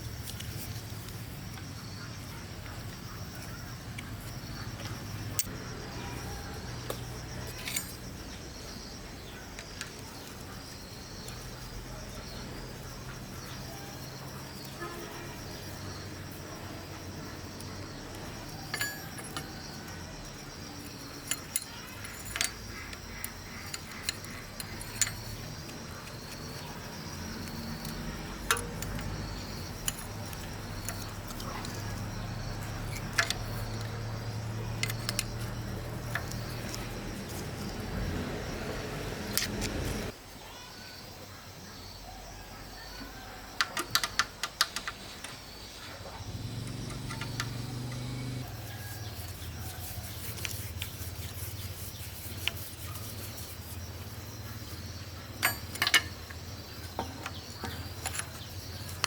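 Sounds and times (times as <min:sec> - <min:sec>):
faint insect chirring: 0:00.0 - 0:59.0
metallic clinks of tools: 0:06.9 - 0:08.2, 0:18.2 - 0:25.6, 0:55.3 - 0:59.0.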